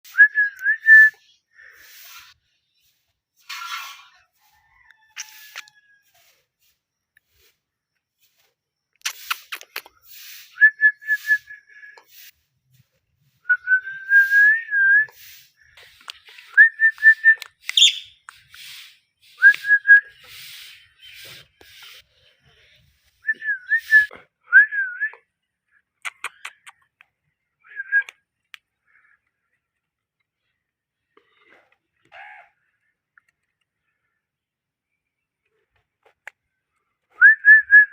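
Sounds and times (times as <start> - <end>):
parrot whistling and chattering: 17.4 - 22.0.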